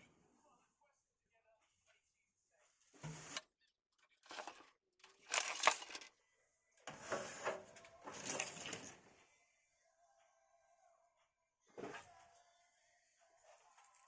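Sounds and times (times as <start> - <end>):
packaging crinkling and rustling: 4.3 - 6.0.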